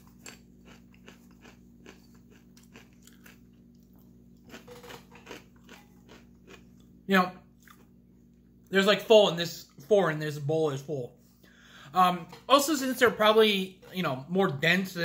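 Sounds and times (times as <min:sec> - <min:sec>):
popcorn being chewed: 0:00.0 - 0:08.7.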